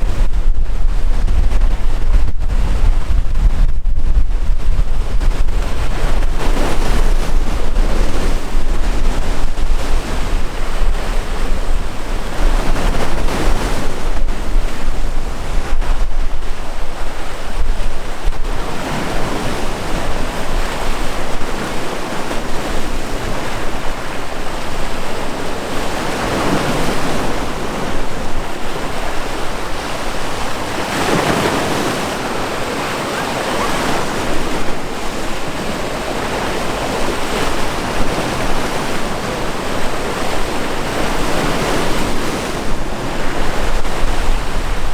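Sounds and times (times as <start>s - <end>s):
sea waves breaking: 0.0s - 44.9s
wind rumbling on microphone: 0.0s - 44.9s.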